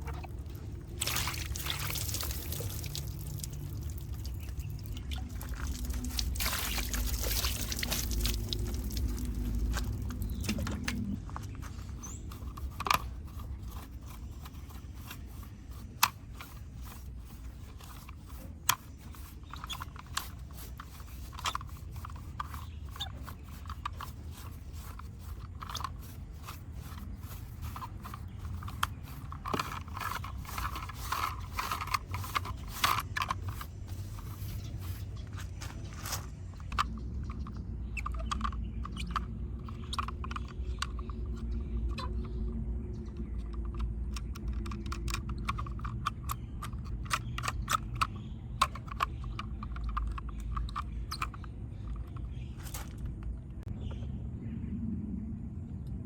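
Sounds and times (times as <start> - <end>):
mud scraping off toy car: 0.0 - 42.3
sharp clicks and crackles: 0.0 - 53.7
low rumble: 53.0 - 56.0.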